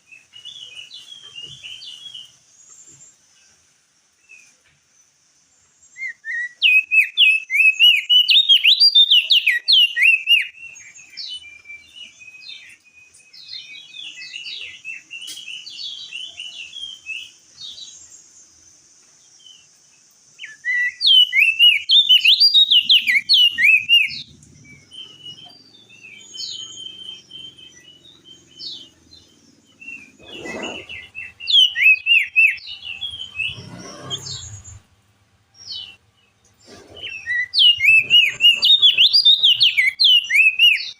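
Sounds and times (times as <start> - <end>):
soft bird twittering: 0.0 - 35.0, 35.6 - 40.9
bird chattering high notes: 36.7 - 40.5.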